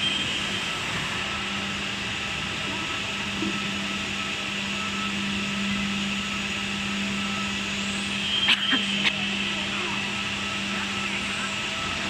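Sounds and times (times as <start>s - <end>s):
machine motor hum and whir: 0.0s - 12.0s.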